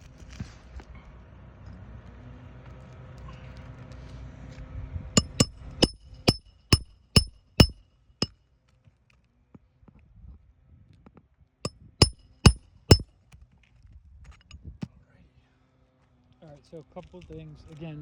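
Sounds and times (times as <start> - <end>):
hammer blows on metal: 5.2 - 7.8, 12.0 - 13.0.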